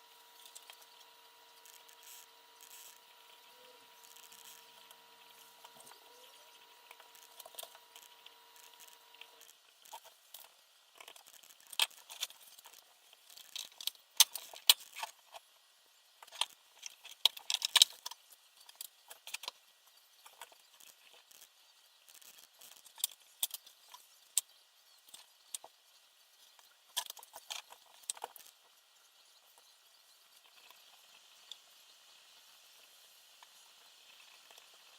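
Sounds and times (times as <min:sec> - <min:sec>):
small hard parts clicking: 0:00.4 - 0:15.5, 0:16.2 - 0:25.8, 0:26.4 - 0:28.7.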